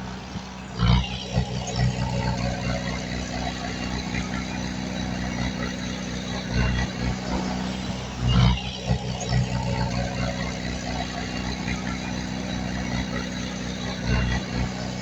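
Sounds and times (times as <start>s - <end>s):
heavy machinery diesel engine: 0.0s - 15.0s.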